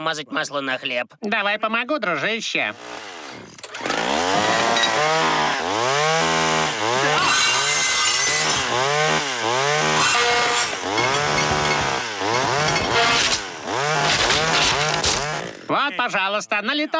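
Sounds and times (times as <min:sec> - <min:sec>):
chainsaw revving: 0:02.7 - 0:15.7.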